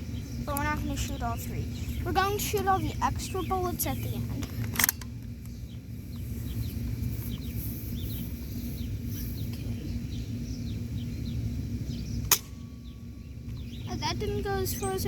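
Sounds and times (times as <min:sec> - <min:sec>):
small birds chirping: 0:00.0 - 0:15.0
sharp snap: 0:12.2 - 0:12.6.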